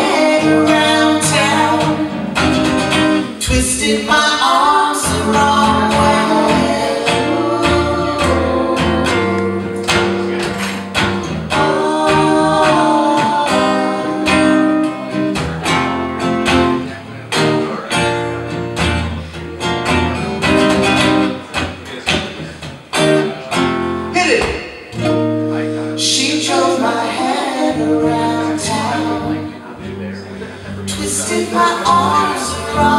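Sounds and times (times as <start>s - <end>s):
acoustic guitar strumming: 0.0s - 32.9s
sustained pitched notes: 5.1s - 24.2s.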